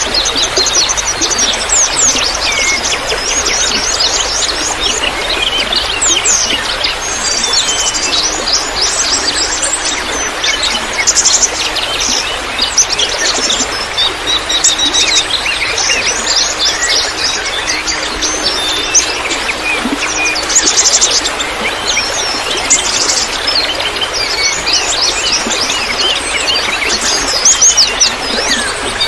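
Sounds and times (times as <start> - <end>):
running water trickling: 0.0 - 29.0.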